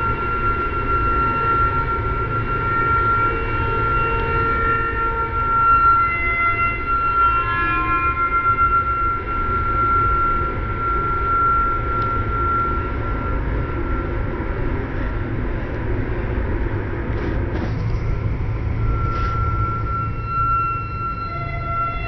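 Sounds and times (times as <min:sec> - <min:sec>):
train rumbling: 0:00.0 - 0:22.0
high steady tone: 0:17.8 - 0:22.0.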